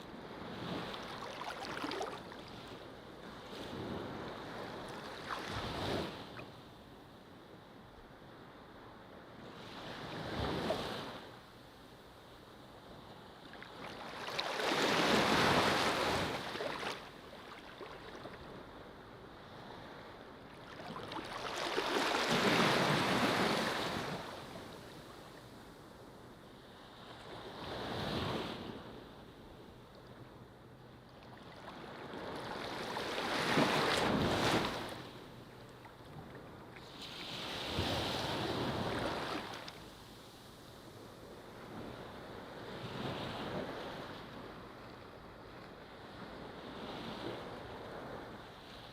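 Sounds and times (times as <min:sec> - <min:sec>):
ocean waves breaking: 0:00.4 - 0:02.7, 0:13.7 - 0:18.4, 0:20.6 - 0:24.6.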